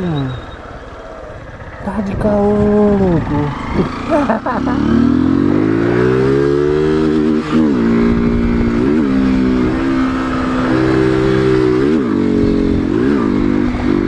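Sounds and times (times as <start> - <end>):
motorcycle engine revving: 0.0 - 14.0
wind rumble on microphone: 1.3 - 4.2, 6.6 - 14.0.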